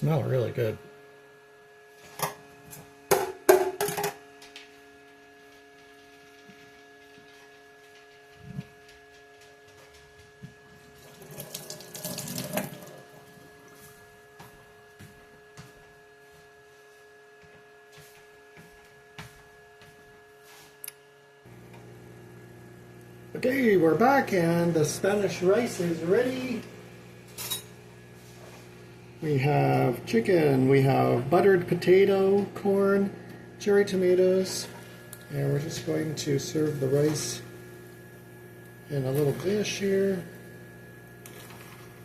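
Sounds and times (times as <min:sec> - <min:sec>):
steady appliance hum: 0:00.0 - 0:42.0
tap water running: 0:10.9 - 0:13.7.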